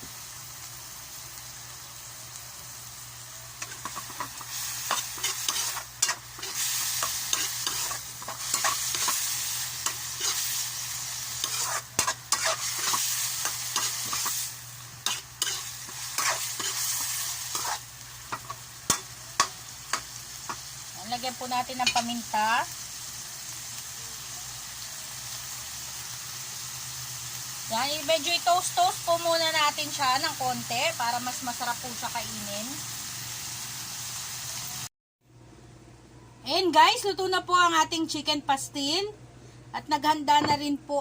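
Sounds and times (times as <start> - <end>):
chicken sizzling in a pan: 0.0 - 34.9
utensil scraping a pan: 3.6 - 10.6, 11.3 - 19.5.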